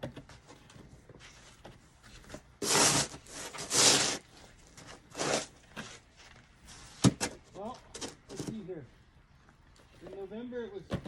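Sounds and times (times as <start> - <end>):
snow shovel scraping snow: 2.6 - 4.3, 5.1 - 6.0.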